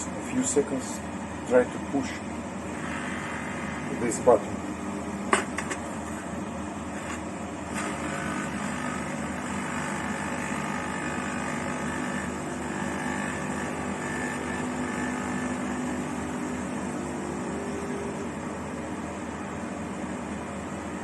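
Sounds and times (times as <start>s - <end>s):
espresso machine pump buzzing: 2.0s - 19.6s.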